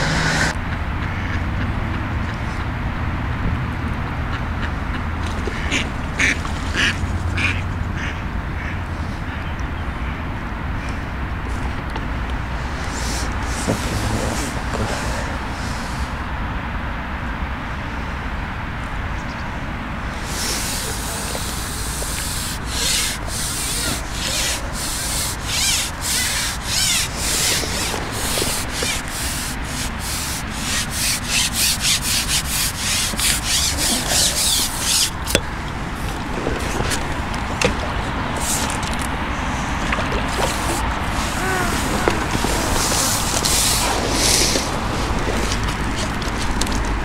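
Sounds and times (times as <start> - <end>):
rhythmic scraping strokes: 20.2 - 35.4.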